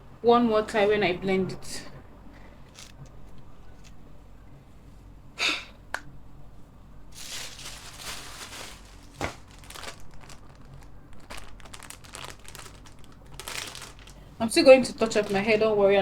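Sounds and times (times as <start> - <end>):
rustling and crinkling: 2.6 - 4.0, 7.1 - 16.0.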